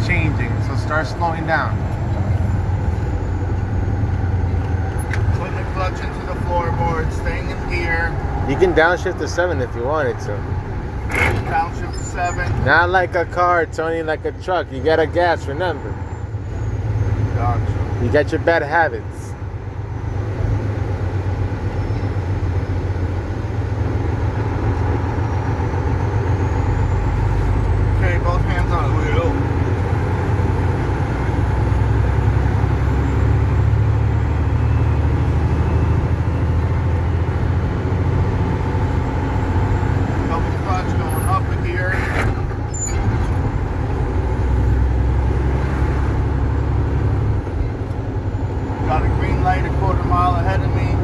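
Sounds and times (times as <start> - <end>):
road noise: 0.0 - 51.0
truck diesel engine running: 0.0 - 51.0.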